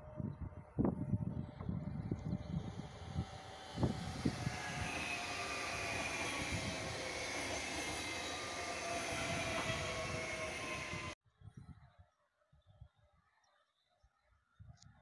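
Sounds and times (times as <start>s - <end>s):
passing train rolling rush: 0.0s - 11.2s.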